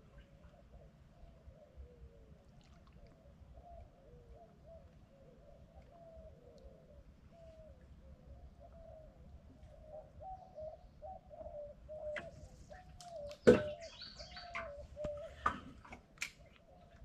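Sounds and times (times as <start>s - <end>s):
bird calling: 3.6s - 17.0s.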